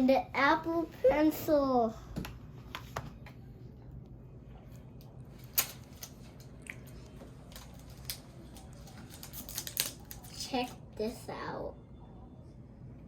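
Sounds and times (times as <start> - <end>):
low steady hum: 0.0 - 13.0
hands handling packaging: 7.5 - 10.4.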